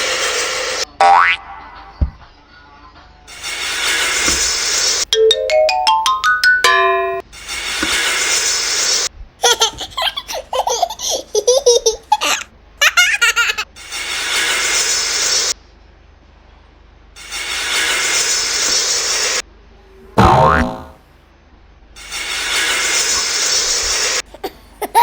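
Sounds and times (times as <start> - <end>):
hiss-like noise: 3.3 - 5.1, 17.2 - 20.1, 22.0 - 24.3
baby giggling: 9.4 - 13.7, 24.3 - 25.0.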